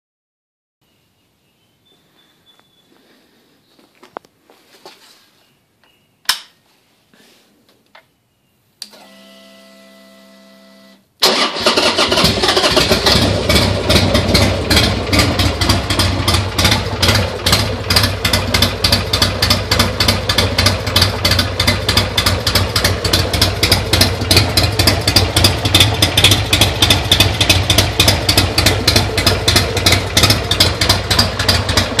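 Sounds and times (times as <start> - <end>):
motorcycle engine idling: 12.7 - 32.0.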